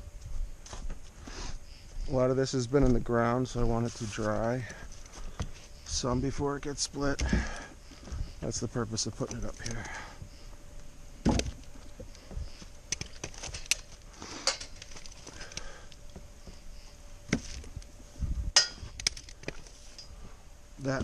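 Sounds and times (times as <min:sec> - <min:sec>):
wooden logs knocking together: 0:05.1 - 0:08.2, 0:11.2 - 0:16.6, 0:17.3 - 0:17.9.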